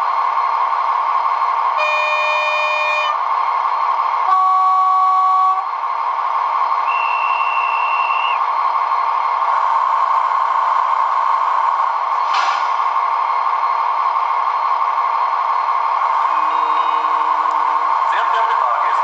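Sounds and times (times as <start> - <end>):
diesel engine running through speaker: 0.0 - 19.0
high whistle tone: 1.8 - 3.2, 4.3 - 5.7, 6.8 - 8.4, 16.2 - 17.5
locomotive horn blasts: 1.8 - 3.2, 4.3 - 5.7, 6.9 - 8.4, 16.3 - 17.5.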